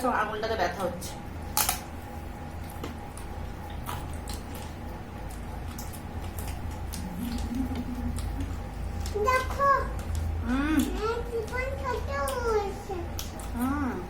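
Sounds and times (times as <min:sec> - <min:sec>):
steady low hum: 0:00.0 - 0:14.0
chewing and wet mouth noises: 0:02.5 - 0:14.0.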